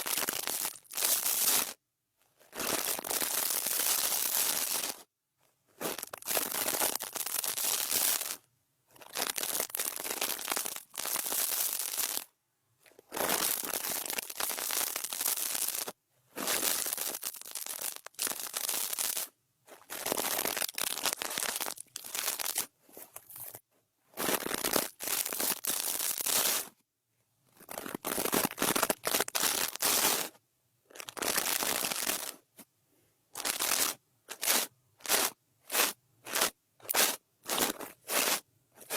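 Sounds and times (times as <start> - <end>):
brush scratching microphone: 33.7 - 38.9.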